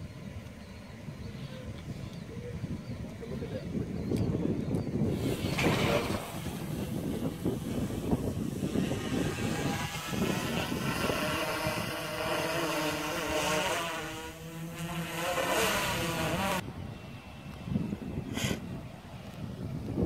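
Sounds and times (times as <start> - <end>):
wind on microphone: 0.0 - 20.0
drone propellers buzzing: 5.0 - 16.6.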